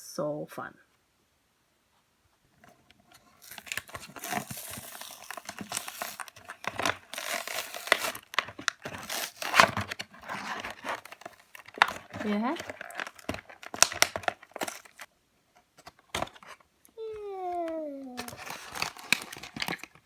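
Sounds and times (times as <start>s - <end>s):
plastic crinkling: 3.1s - 15.1s, 17.2s - 20.0s
cardboard tearing: 3.2s - 15.1s, 17.4s - 20.0s.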